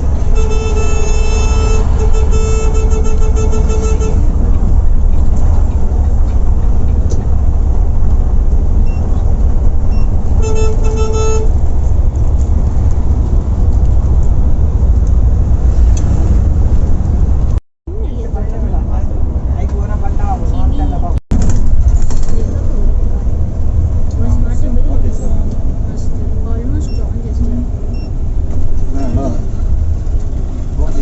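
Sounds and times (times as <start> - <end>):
horn honking: 0.0 - 4.5, 9.9 - 12.0
coach engine and road rumble: 0.0 - 31.0.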